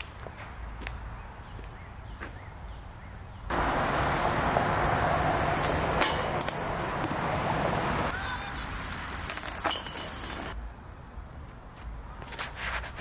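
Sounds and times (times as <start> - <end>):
car driving past: 3.5 - 8.1.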